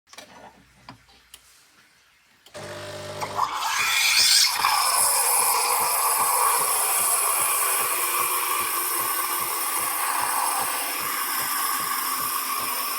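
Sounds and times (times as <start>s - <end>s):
coffee machine whirring: 2.6s - 12.9s.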